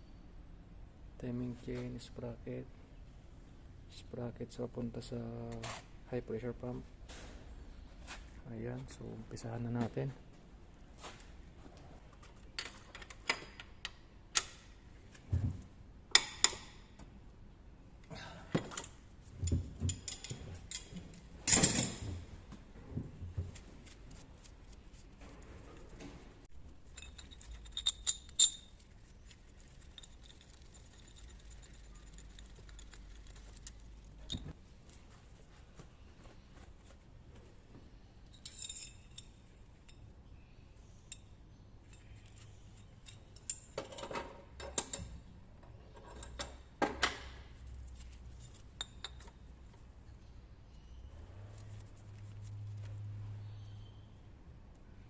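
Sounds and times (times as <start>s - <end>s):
metallic clinks of tools: 18.8s - 22.1s, 26.9s - 28.8s, 38.3s - 40.0s.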